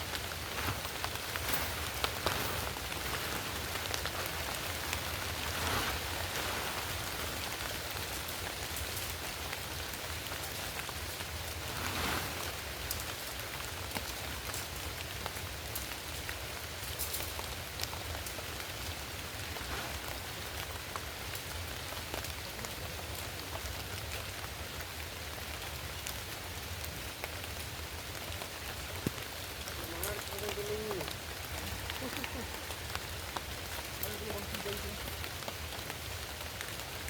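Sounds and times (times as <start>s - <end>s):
rain drops ticking: 0.0s - 37.0s
steady rain hiss: 0.0s - 37.0s.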